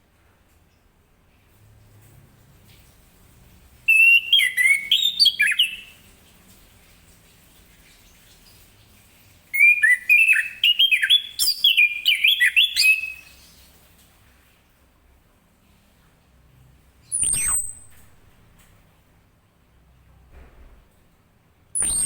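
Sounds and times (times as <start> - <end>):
bird whistling song: 3.9 - 6.0, 9.6 - 13.6, 17.1 - 18.0, 21.8 - 22.0.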